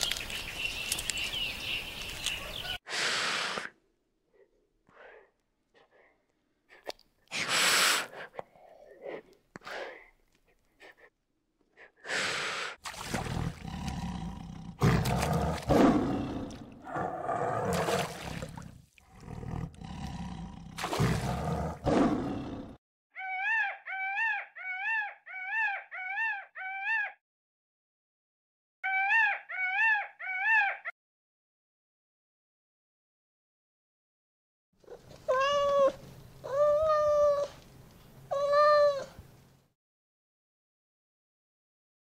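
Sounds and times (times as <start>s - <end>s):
tiger roaring and growling: 13.2s - 22.8s
peacock calls: 23.2s - 27.2s, 28.8s - 30.9s.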